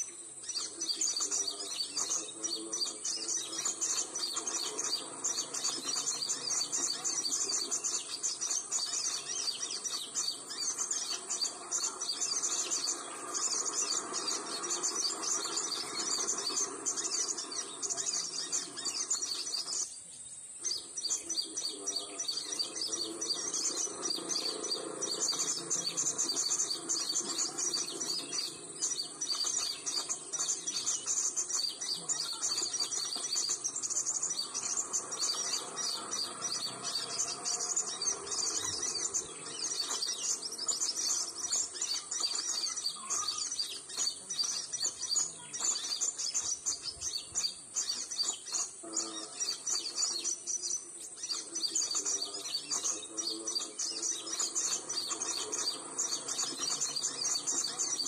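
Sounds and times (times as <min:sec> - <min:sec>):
high-pitched insect hum: 0:00.0 - 0:58.0
small songbirds chirping: 0:00.0 - 0:58.0.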